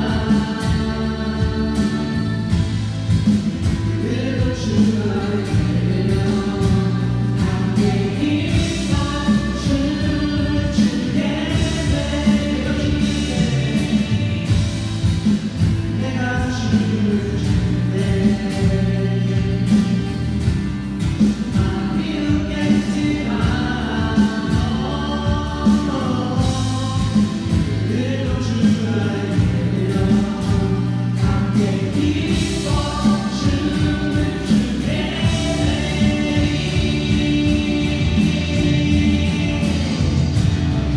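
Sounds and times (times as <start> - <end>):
group singing worship song: 0.0 - 40.9
instrumental accompaniment with beat: 0.1 - 4.0, 19.6 - 27.9.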